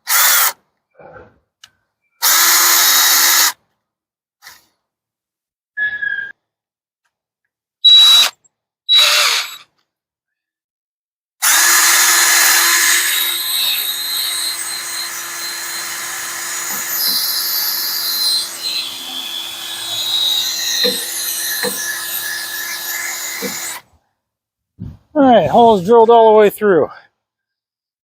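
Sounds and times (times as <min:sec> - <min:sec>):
electric drill drilling metal: 0:02.2 - 0:03.6, 0:08.9 - 0:09.7, 0:11.4 - 0:23.9.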